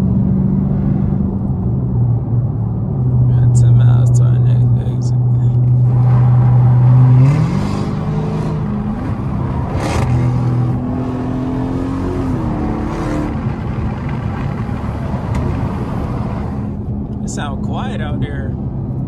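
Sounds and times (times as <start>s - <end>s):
car engine at speed: 0.0s - 19.0s
road noise: 0.0s - 19.0s.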